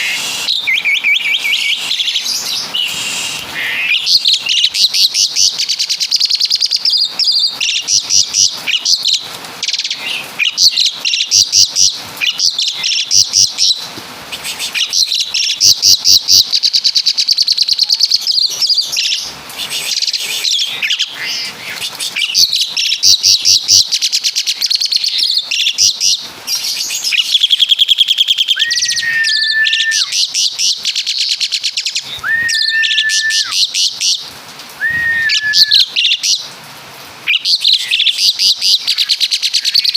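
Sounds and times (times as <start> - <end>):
starling singing rapid rattling trills: 0.0 - 34.2
bird whistled notes: 27.2 - 30.3, 32.2 - 33.7, 34.8 - 35.9.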